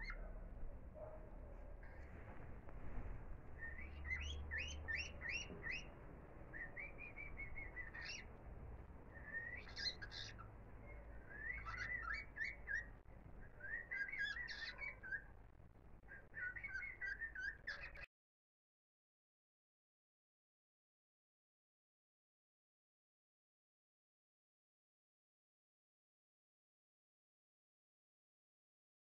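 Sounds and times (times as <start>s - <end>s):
songbird chirping and warbling: 0.0s - 2.6s, 3.4s - 18.1s.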